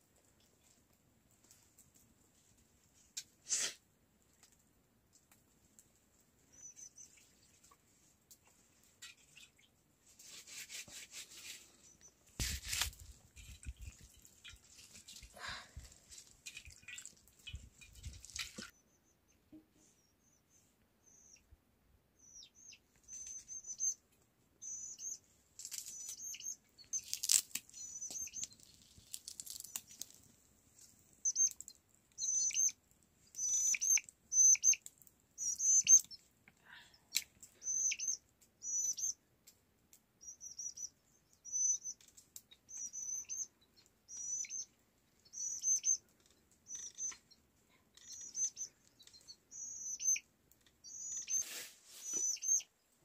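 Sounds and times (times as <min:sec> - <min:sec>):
small bird chirping: 0:06.5 - 0:07.3, 0:11.4 - 0:12.3, 0:16.6 - 0:21.6, 0:22.2 - 0:30.2, 0:31.2 - 0:36.3, 0:37.0 - 0:39.3, 0:40.1 - 0:52.8.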